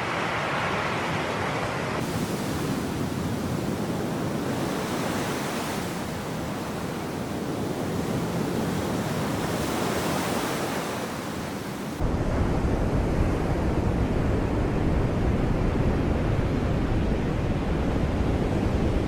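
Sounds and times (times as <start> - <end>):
sea waves washing on shore: 0.0 - 12.0.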